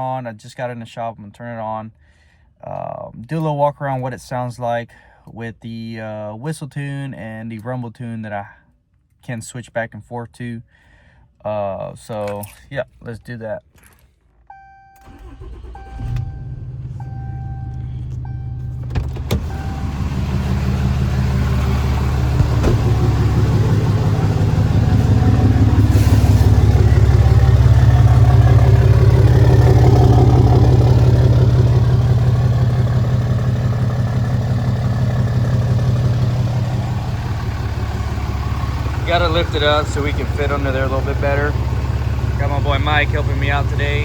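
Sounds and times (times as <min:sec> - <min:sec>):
vehicle warning chime beeping: 0:14.5 - 0:34.3
diesel engine starting and idling: 0:14.5 - 0:44.0.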